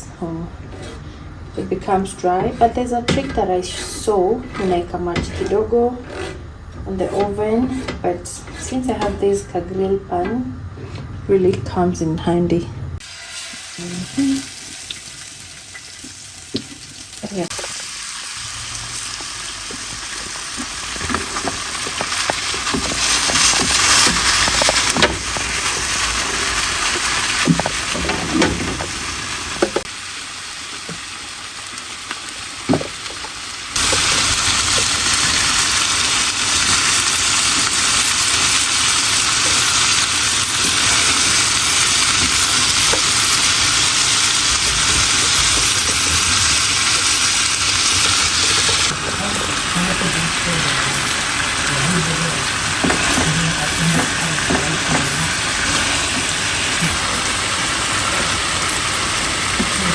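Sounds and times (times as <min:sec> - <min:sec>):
food sizzling in a pan: 0:13.0 - 0:59.9.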